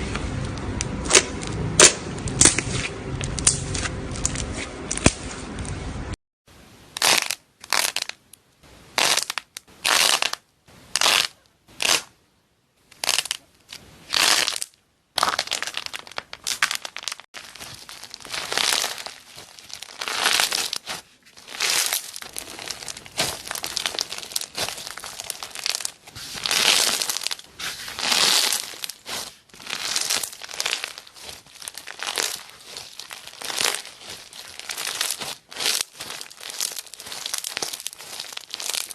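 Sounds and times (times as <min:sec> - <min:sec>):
brittle material crunching by hand: 0:07.0 - 0:08.2, 0:09.0 - 0:10.4, 0:11.0 - 0:12.1, 0:13.0 - 0:13.4, 0:14.1 - 0:38.9.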